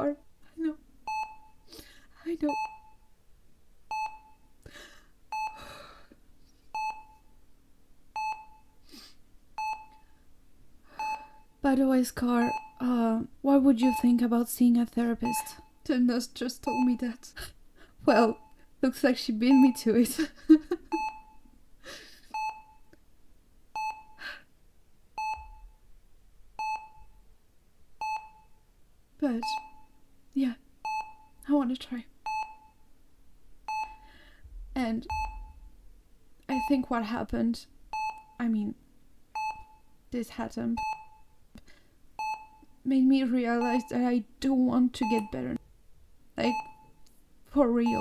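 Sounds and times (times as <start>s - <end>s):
patient monitor beeping: 1.1s - 1.6s, 2.4s - 3.0s, 3.9s - 4.4s, 5.3s - 5.7s, 6.7s - 7.3s, 8.1s - 8.7s, 9.6s - 10.1s, 11.0s - 11.6s, 12.3s - 12.9s, 13.8s - 14.2s, 15.2s - 15.8s, 16.6s - 17.2s, 19.5s - 21.5s, 22.2s - 22.9s, 23.8s - 24.2s, 25.2s - 25.8s, 26.6s - 27.1s, 28.0s - 28.6s, 29.4s - 30.0s, 30.8s - 31.4s, 32.2s - 32.8s, 33.7s - 34.1s, 35.0s - 35.7s, 36.5s - 36.9s, 37.9s - 38.4s, 39.3s - 39.9s, 40.7s - 41.3s, 42.2s - 42.8s, 43.6s - 44.1s, 44.9s - 45.6s, 46.4s - 47.0s, 47.8s - 48.0s.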